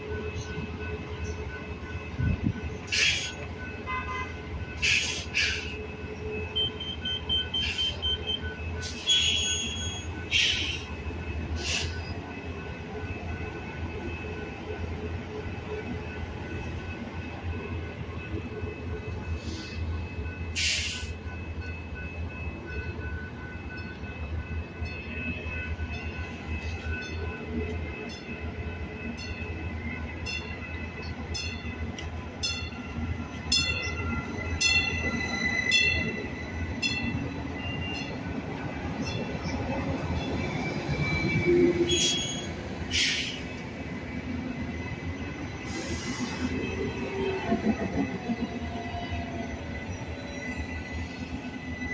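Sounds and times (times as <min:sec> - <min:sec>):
train cars rumbling on rails: 0:00.0 - 0:51.9
train low hum: 0:00.0 - 0:51.9
high squeal of wheels or brakes: 0:06.5 - 0:11.0, 0:33.8 - 0:38.1, 0:40.2 - 0:43.6.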